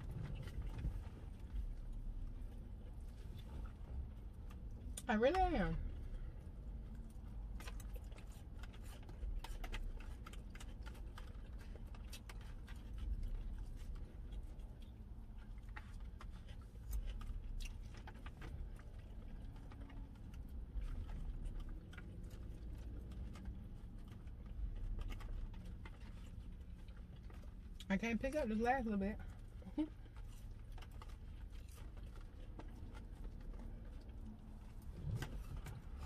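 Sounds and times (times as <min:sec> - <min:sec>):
chewing salad: 0:00.0 - 0:36.0.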